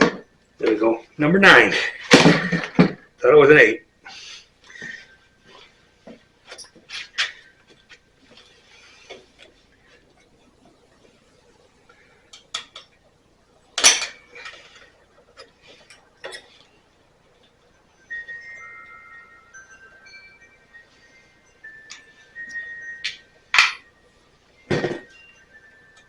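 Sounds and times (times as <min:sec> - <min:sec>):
metal hand tools clanking: 0:13.8 - 0:16.5, 0:21.9 - 0:23.9.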